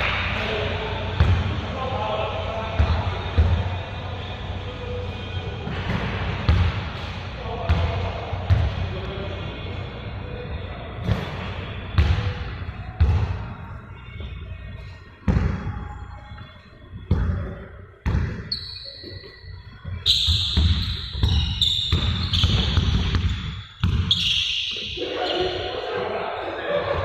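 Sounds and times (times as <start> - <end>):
basketballs bouncing on gym floor: 5.7 - 7.0, 7.6 - 8.8, 12.0 - 13.4, 17.0 - 18.5, 20.2 - 24.4
sneaker squeaks on court: 17.1 - 25.7.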